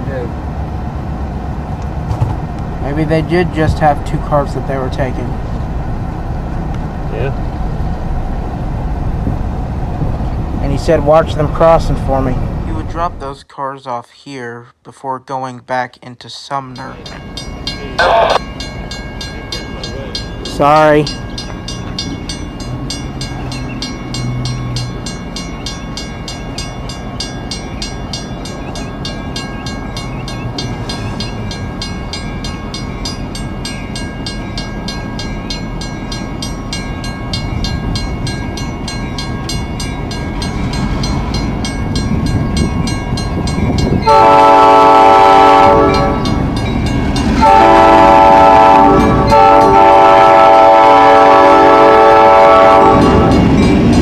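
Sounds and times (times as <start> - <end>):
locomotive rumble: 0.0 - 13.4, 16.9 - 54.0
locomotive bell ringing: 2.8 - 6.5, 16.6 - 54.0
locomotive air horn blasts: 44.0 - 46.5, 47.4 - 53.4.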